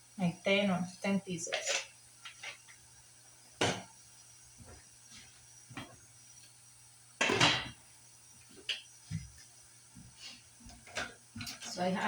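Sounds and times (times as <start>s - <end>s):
kitchen items knocking and clattering: 3.6s - 3.9s, 7.2s - 7.8s.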